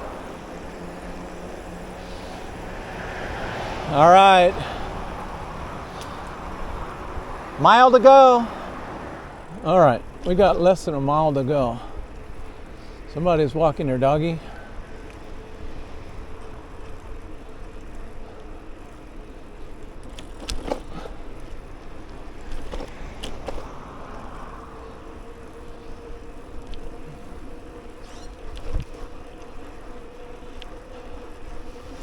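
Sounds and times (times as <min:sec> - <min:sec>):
bicycle tyre rumble: 0:00.0 - 0:32.0
steady hum: 0:00.0 - 0:32.0
wind on microphone: 0:04.6 - 0:07.6.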